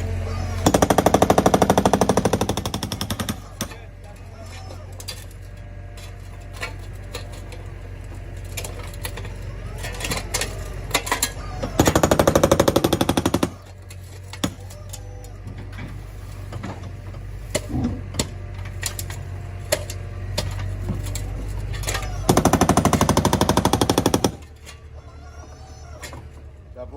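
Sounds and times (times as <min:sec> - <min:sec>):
jackhammer hammering: 0:00.0 - 0:03.9, 0:08.5 - 0:14.9, 0:17.5 - 0:24.7.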